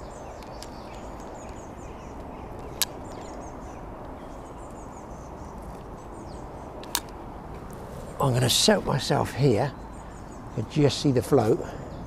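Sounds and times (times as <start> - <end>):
birds chirping faintly: 0.0 - 12.0
low background noise: 0.0 - 12.0
sharp click: 6.8 - 7.2.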